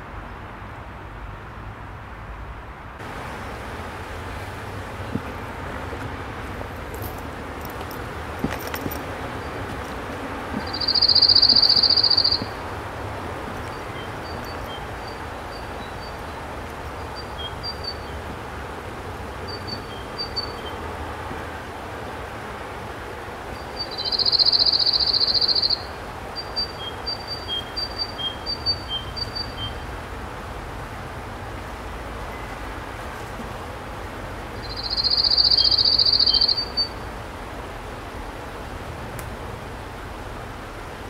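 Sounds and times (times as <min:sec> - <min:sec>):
songbird trilling: 0:10.5 - 0:12.6, 0:23.8 - 0:29.8, 0:34.6 - 0:37.0
short high bird chirps: 0:10.6 - 0:12.5, 0:34.6 - 0:36.9.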